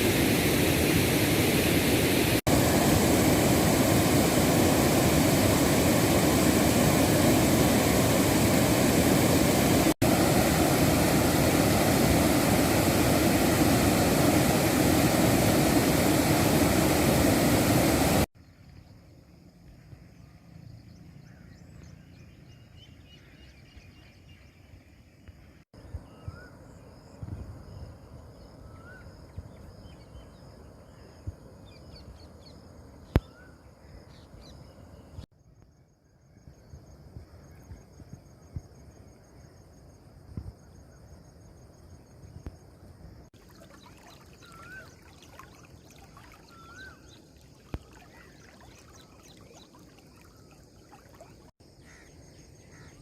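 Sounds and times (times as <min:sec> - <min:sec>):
birds chirping: 0:43.5 - 0:53.0.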